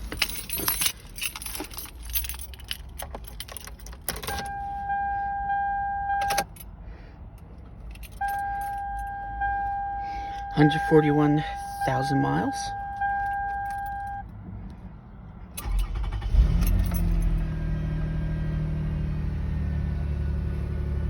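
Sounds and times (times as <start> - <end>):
car keys jangling: 0.0 - 4.9, 6.1 - 6.8, 7.5 - 14.2, 15.6 - 17.4
electronic warning tone: 8.3 - 14.2.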